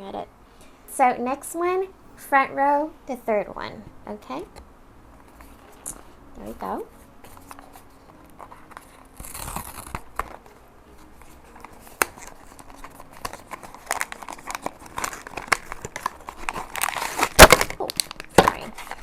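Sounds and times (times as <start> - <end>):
foil bag crinkling: 6.7 - 19.0
cardboard box being opened: 7.3 - 10.5, 11.2 - 19.0.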